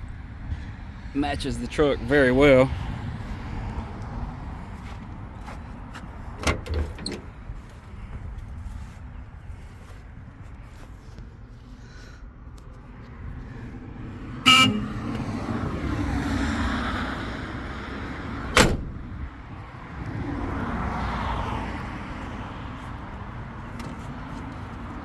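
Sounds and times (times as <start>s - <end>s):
road vehicles passing: 0.0s - 25.0s
horn toot: 14.5s - 15.2s.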